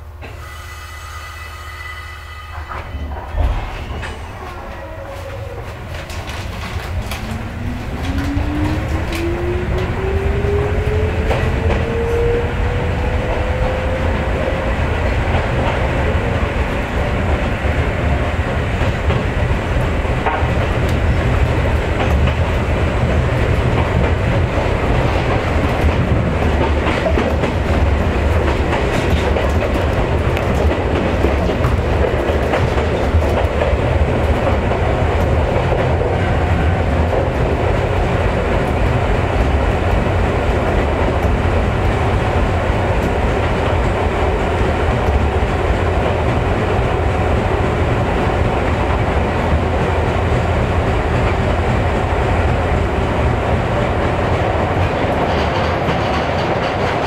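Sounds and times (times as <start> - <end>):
train wheels rumbling on rail: 0.0 - 57.0
clacking over rail joints: 2.6 - 12.3, 15.0 - 47.0, 53.5 - 57.0.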